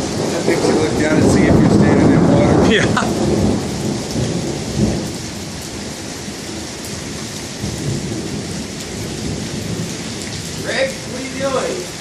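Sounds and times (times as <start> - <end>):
rumble of thunder: 0.0 - 11.2
heavy rain splashing: 0.0 - 12.0.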